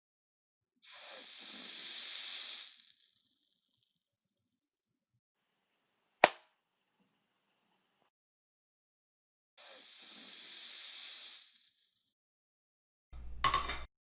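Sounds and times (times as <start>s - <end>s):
hissing spray: 0.8s - 4.2s, 9.6s - 12.1s.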